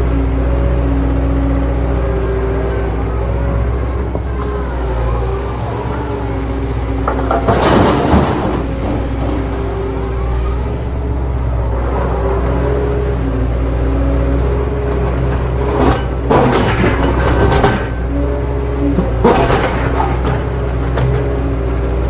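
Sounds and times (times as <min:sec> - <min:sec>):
toy vehicles clattering and scraping: 0:07.0 - 0:09.6.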